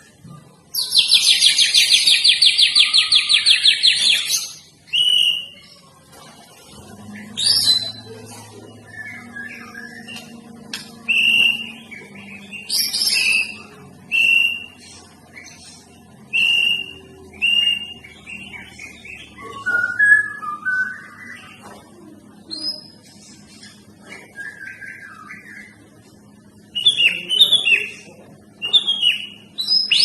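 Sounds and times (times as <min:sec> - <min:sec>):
bird whistled notes: 0:19.3 - 0:21.6.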